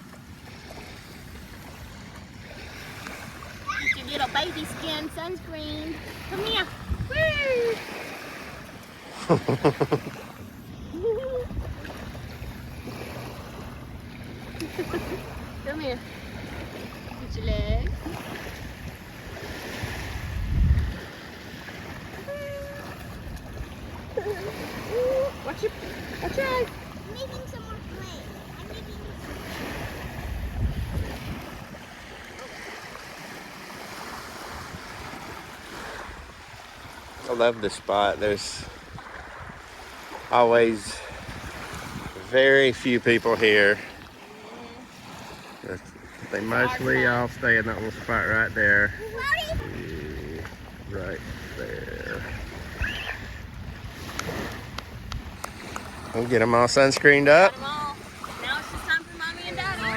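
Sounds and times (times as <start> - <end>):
shallow water washing on beach: 0.0 - 59.9
wind buffeting microphone: 1.0 - 9.0, 10.3 - 33.3, 34.0 - 44.1, 45.1 - 59.9
wavering voice-like call: 22.2 - 23.0, 51.9 - 53.3.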